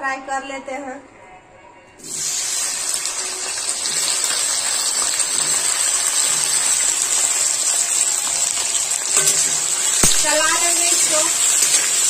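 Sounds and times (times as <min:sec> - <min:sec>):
okra sizzling in hot oil: 0:02.0 - 0:12.0.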